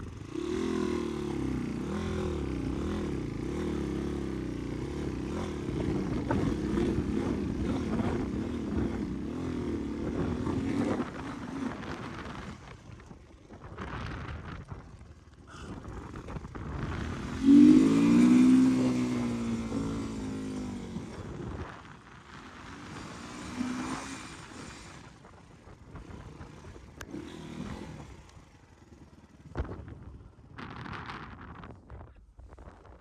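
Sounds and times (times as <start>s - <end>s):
dirt bike engine revving: 0.0s - 12.7s, 15.5s - 21.7s, 22.4s - 29.4s.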